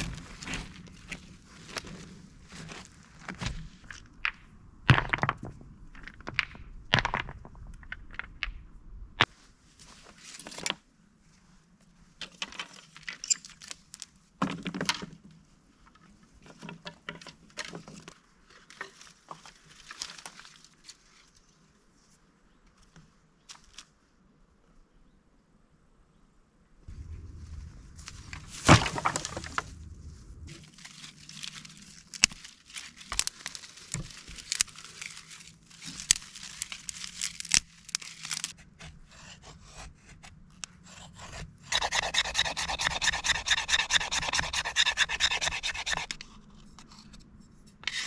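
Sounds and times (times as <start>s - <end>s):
clicks and rustles: 26.9s - 38.6s
knocks snaps and cracks: 27.0s - 30.5s, 31.4s - 38.6s.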